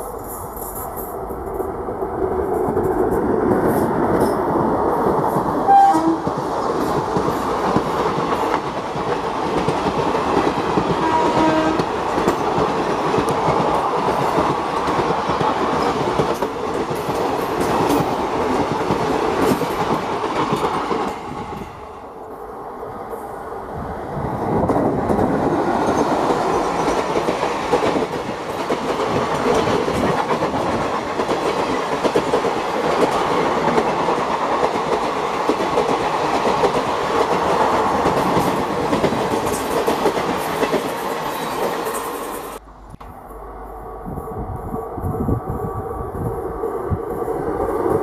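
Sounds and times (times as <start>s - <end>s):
another train approaching: 0.0s - 48.0s
train rumble and rail clatter: 0.0s - 48.0s
train horn blasts: 5.6s - 6.3s, 11.0s - 11.9s.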